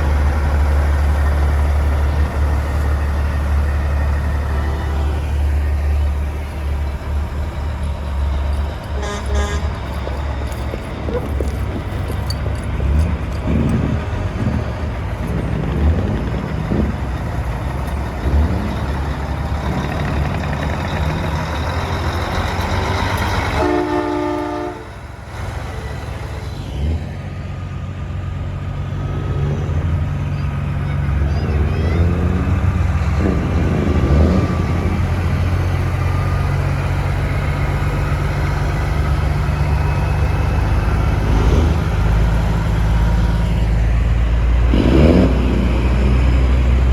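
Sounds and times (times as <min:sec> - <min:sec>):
truck diesel engines rumbling: 0:00.0 - 0:46.9
chorded air horn: 0:09.0 - 0:09.9, 0:23.4 - 0:25.0.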